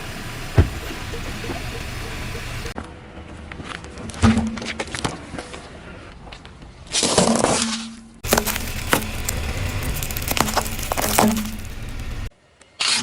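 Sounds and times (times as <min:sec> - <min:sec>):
objects crushed under car tyre: 0:08.2 - 0:12.3.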